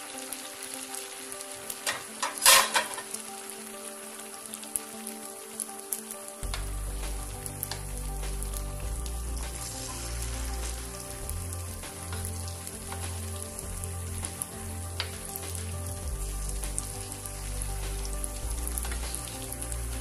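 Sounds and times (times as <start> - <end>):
food deep-frying in oil: 0.0 - 20.0
background music with bass: 6.4 - 20.0.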